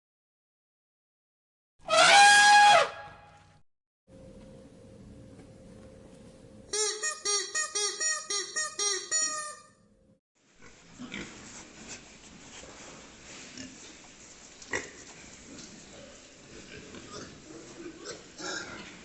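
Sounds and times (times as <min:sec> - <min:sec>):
animal high-pitched calls: 0:01.9 - 0:03.1
rustling: 0:10.9 - 0:15.9.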